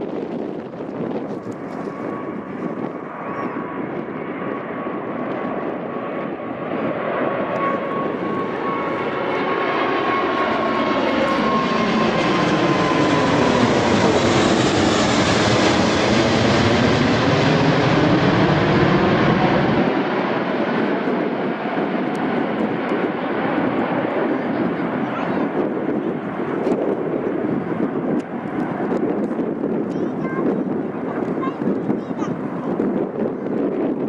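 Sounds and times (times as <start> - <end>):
jet airliner passing: 0.0 - 34.0.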